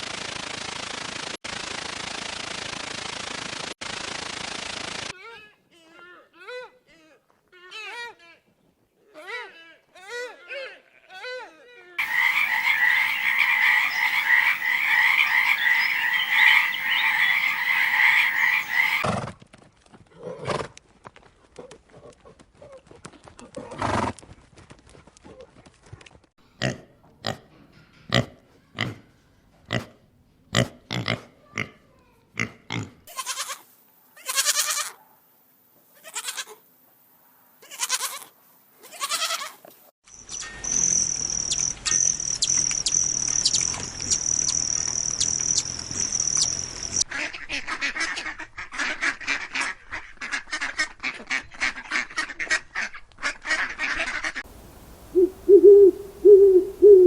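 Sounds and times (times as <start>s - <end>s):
animal calls: 12.0s - 19.0s, 54.0s - 57.0s
fast animal chattering: 12.0s - 19.0s
owl hooting: 12.0s - 19.0s, 54.5s - 57.0s.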